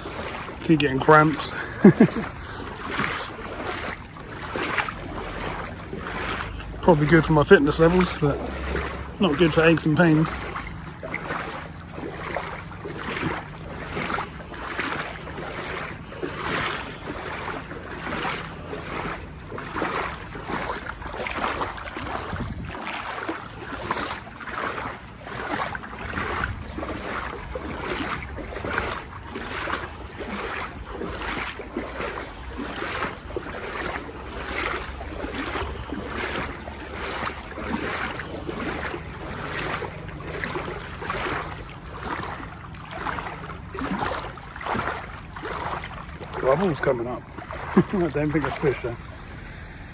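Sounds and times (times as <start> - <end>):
wading through water: 0.0 - 49.9
wind rumble on microphone: 8.2 - 46.3.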